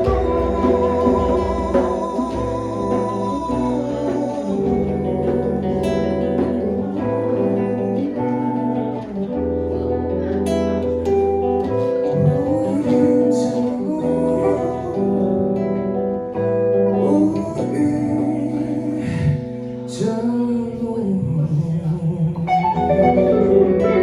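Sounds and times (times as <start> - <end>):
acoustic and electric guitars: 0.0 - 24.0.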